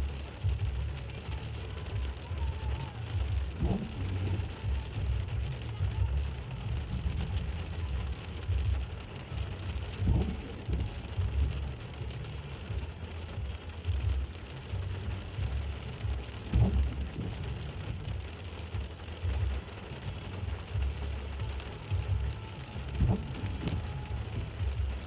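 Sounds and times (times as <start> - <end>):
rain falling: 0.0 - 25.0
low thunder rumble: 3.4 - 13.1, 15.0 - 19.7, 21.9 - 25.0
dull thump: 22.9 - 24.9.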